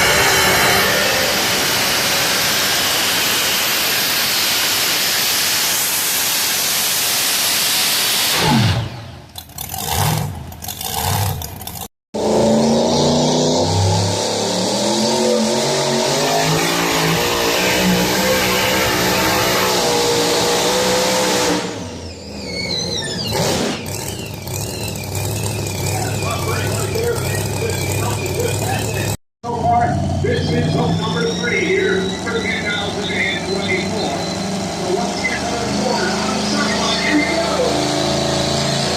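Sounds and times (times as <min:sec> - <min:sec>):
engine throttle blips: 0:00.0 - 0:38.9
truck engine uneven low speed: 0:08.7 - 0:38.9
truck engine running under load: 0:23.1 - 0:38.7.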